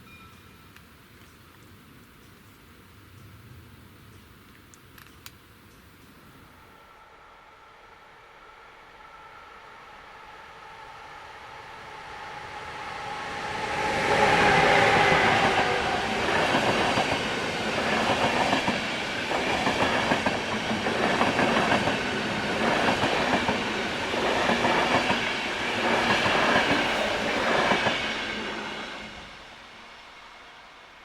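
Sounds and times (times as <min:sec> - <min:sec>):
passenger train passing: 0:06.6 - 0:31.0.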